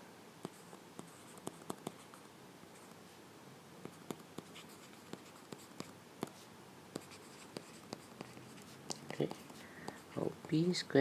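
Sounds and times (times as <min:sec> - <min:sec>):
faint steady hiss: 0:00.0 - 0:11.0
pen writing on paper: 0:00.4 - 0:02.1, 0:03.9 - 0:10.3.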